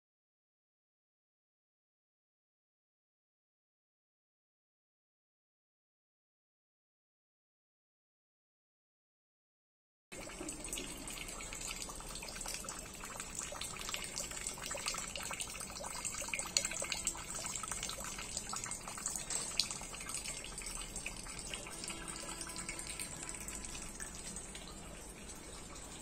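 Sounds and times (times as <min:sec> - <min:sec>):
rainwater running into plastic drum: 0:10.2 - 0:26.0
rain on leaves and net: 0:21.6 - 0:26.0.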